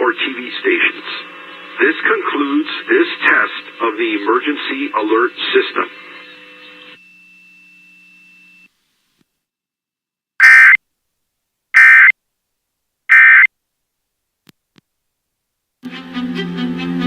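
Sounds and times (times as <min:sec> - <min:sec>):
digital squawks: 0:10.4 - 0:10.8, 0:11.8 - 0:12.1, 0:13.1 - 0:13.5.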